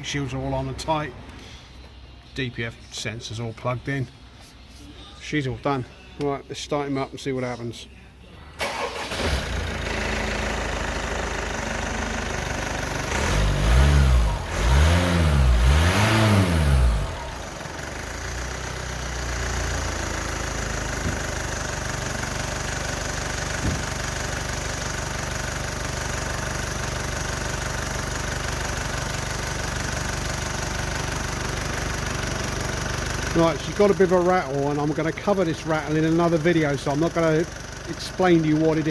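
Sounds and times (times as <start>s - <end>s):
diesel engine starting and idling: 8.4s - 38.9s
diesel engine revving: 8.6s - 24.6s
engine rattle: 8.6s - 38.9s.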